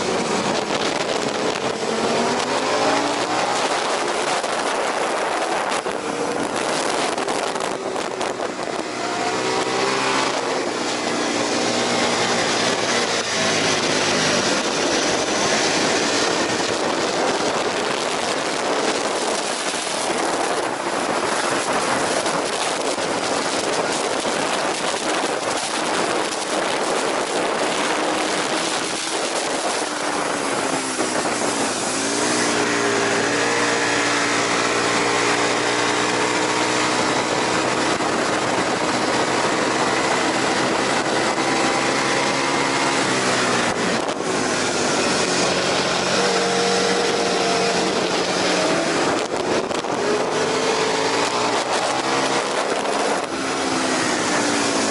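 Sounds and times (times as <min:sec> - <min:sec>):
motorcycle engine running hard: 0:00.0 - 0:54.9
wind noise: 0:00.0 - 0:54.9.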